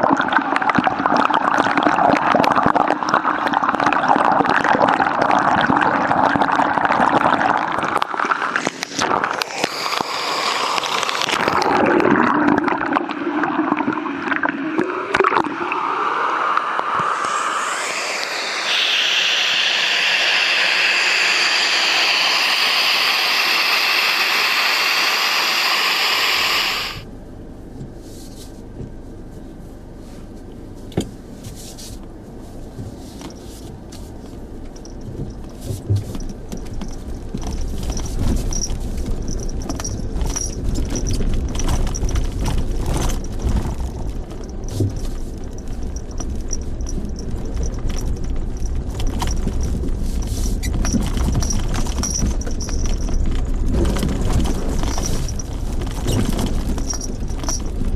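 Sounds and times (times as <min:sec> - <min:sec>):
waterfall pouring and splashing: 0:07.7 - 0:12.1, 0:14.4 - 0:27.0
low rumble: 0:15.4 - 0:25.5.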